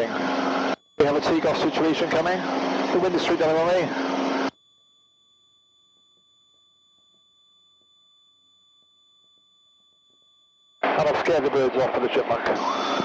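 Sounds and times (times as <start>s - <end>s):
faint electronic whine: 0.0s - 13.0s
cockpit intercom audio: 10.8s - 13.0s.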